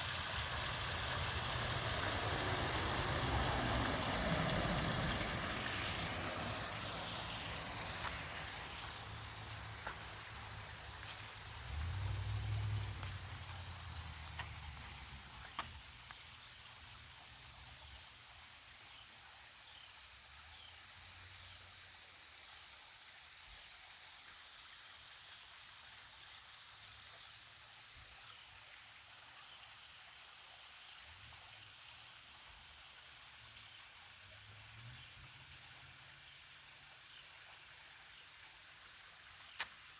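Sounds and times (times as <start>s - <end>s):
creek water running: 0.0s - 39.9s.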